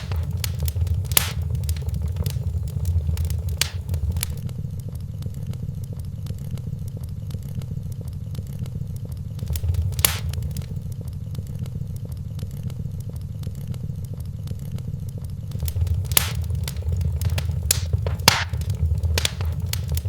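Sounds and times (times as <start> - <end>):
wood fire crackling: 0.0 - 4.4, 9.4 - 11.0, 15.5 - 20.0.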